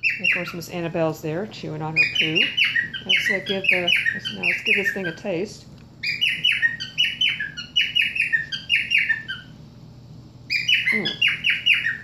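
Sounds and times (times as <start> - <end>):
cockatiels squawking: 0.0 - 0.8, 1.9 - 5.4, 6.0 - 9.5, 10.5 - 12.0.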